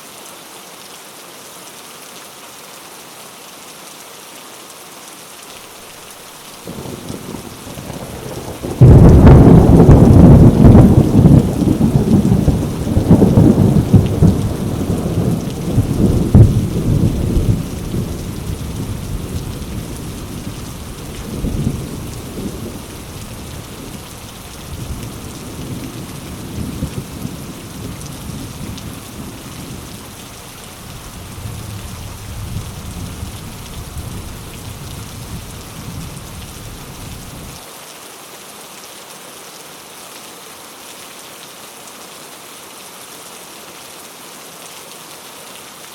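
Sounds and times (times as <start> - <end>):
heavy rain on leaves: 0.0 - 45.9
deep thunder rumble: 6.7 - 30.0, 30.8 - 37.6.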